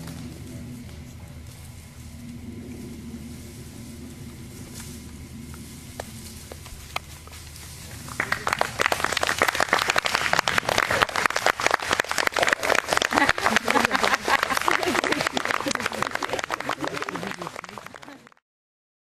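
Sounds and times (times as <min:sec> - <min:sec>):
audience applauding: 0:07.9 - 0:18.4.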